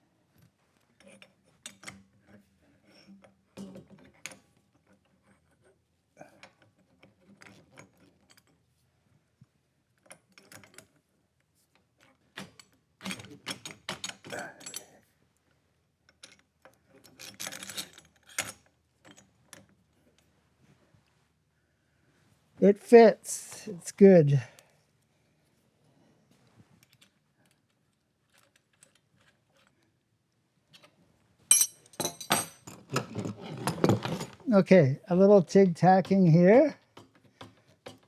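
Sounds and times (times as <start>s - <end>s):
metal parts clinking and scraping: 31.5s - 34.4s.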